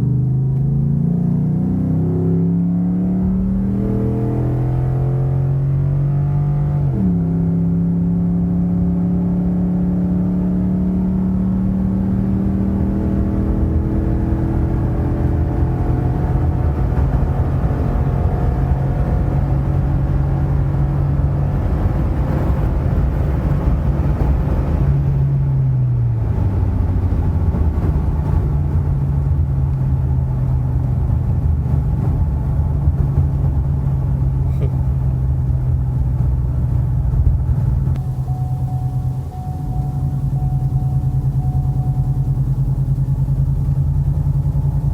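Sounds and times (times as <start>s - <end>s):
truck engine driving: 11.0s - 44.9s.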